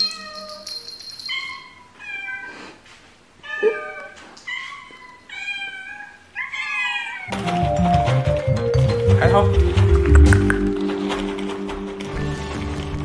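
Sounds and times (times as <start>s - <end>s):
cats meowing: 1.3s - 2.8s, 3.4s - 7.3s.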